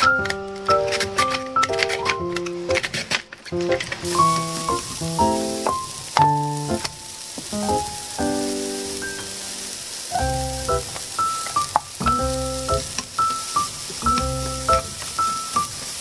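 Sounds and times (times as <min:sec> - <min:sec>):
carrot strips sizzling in oil: 0:03.6 - 0:16.0.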